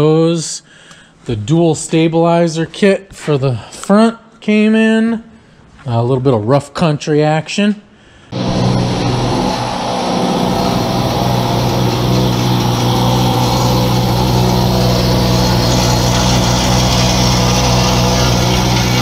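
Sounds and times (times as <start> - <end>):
motor droning: 8.4 - 19.0.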